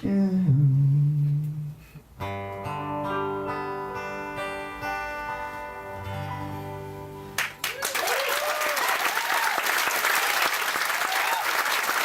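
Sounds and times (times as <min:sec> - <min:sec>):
acoustic guitar strumming chords: 0:02.2 - 0:07.6.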